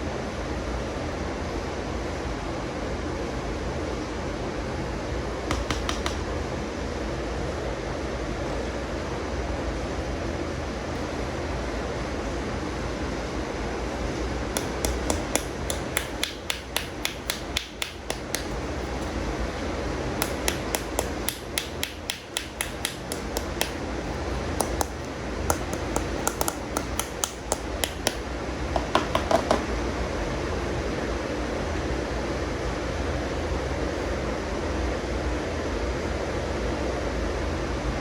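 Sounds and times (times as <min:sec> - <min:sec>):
low background hum: 0:00.0 - 0:38.0
toy figures clicking: 0:14.6 - 0:18.6, 0:20.2 - 0:23.8.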